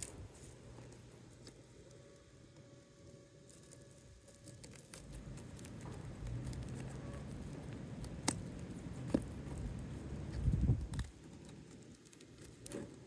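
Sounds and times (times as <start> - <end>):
roof shingle rustling and scraping: 2.9 - 13.0
low rumble: 5.0 - 11.1.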